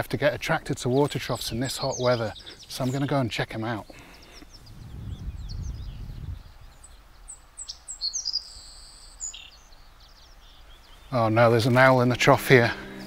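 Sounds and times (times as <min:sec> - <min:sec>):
small birds chirping: 0:00.0 - 0:13.0
low rumble: 0:04.7 - 0:06.8.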